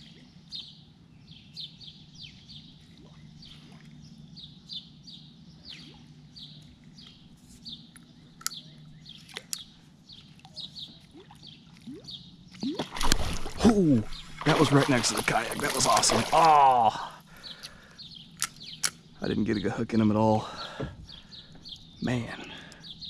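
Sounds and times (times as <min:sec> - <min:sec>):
low steady hum: 0:00.0 - 0:23.0
songbirds chirping: 0:00.0 - 0:23.0
sharp clicks: 0:18.4 - 0:19.0.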